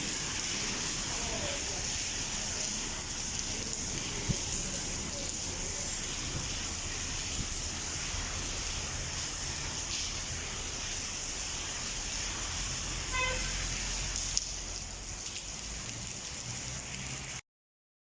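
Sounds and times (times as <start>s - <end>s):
heavy rain hissing: 0.0s - 17.4s
low traffic rumble: 0.0s - 17.4s
car horn toot: 13.1s - 13.7s.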